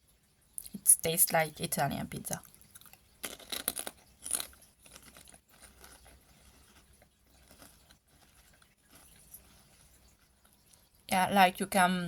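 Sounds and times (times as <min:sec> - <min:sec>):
chewing crunchy potato chips: 0:02.4 - 0:10.9.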